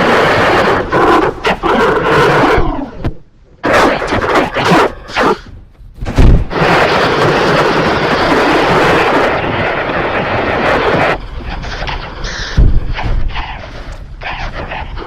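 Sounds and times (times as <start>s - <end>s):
short loud distorted blasts: 2.4s - 13.0s
heavy boom: 6.0s - 10.2s.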